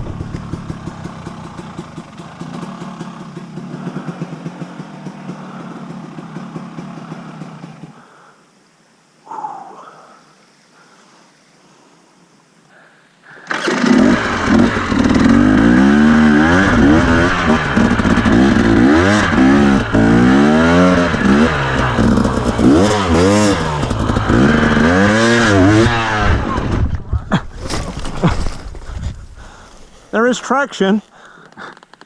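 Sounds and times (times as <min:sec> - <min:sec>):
dirt bike engine revving: 0:00.0 - 0:08.0, 0:13.5 - 0:29.6.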